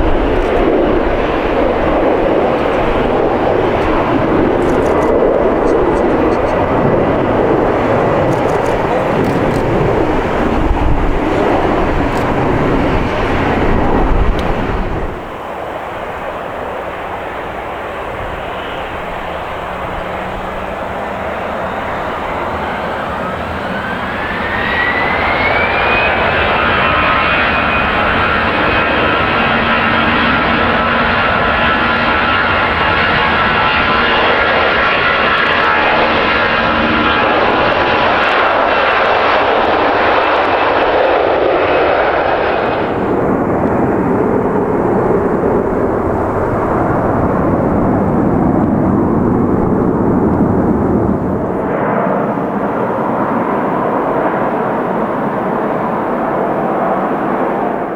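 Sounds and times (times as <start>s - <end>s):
low engine rumble: 0.0s - 15.3s
jet engines whining: 0.0s - 57.9s.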